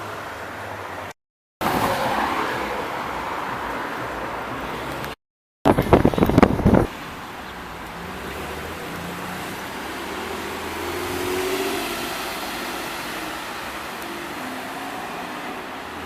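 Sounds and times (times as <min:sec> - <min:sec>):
car passing by: 0:01.6 - 0:05.2, 0:07.7 - 0:16.0.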